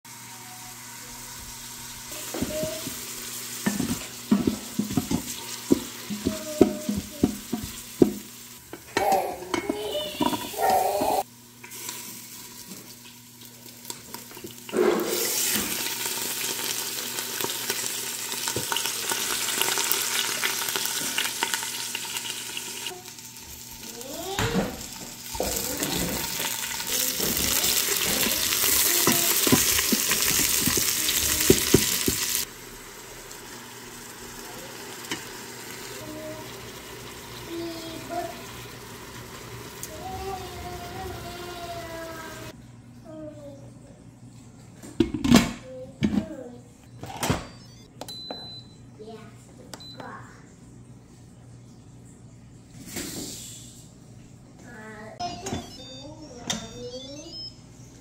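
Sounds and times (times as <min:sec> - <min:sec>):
chicken sizzling in oil: 0:00.1 - 0:42.6
knocks and clatter in pot: 0:03.6 - 0:10.8, 0:24.4 - 0:32.4.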